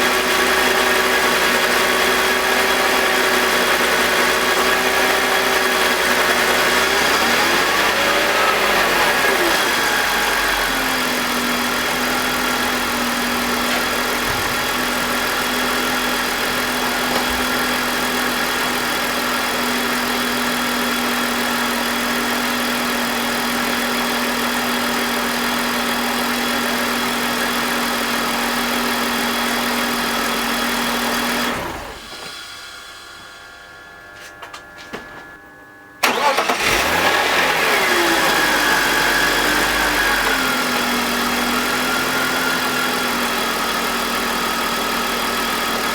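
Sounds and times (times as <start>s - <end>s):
car engine idling: 0.0s - 31.0s, 36.0s - 45.9s
engine restarting: 36.0s - 42.8s.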